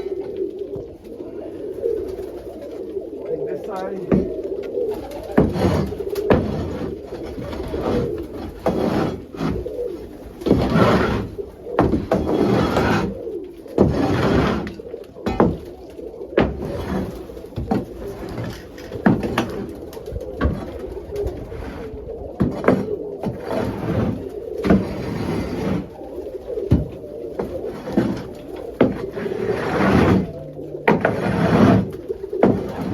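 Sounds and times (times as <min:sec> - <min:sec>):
pigeons cooing: 0:00.0 - 0:32.9
scraping and rustling: 0:00.0 - 0:32.9
sharp knocks: 0:05.4 - 0:07.0, 0:10.4 - 0:13.2, 0:13.8 - 0:15.8.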